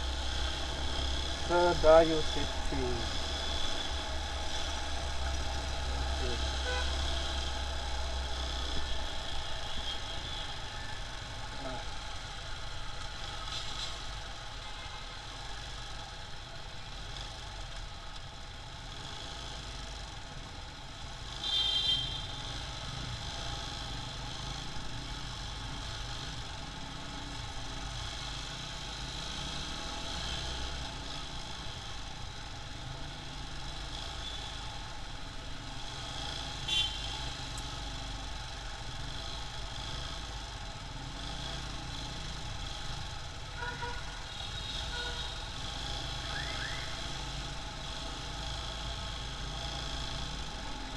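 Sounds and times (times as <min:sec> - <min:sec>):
motorcycle road and engine noise: 0:00.0 - 0:50.9
rising whistle-like tones: 0:46.2 - 0:47.0.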